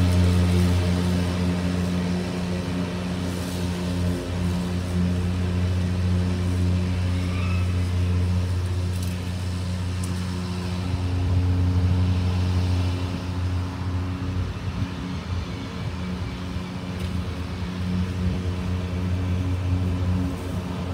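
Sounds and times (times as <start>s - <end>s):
electric lawn mower humming: 0.0s - 20.9s.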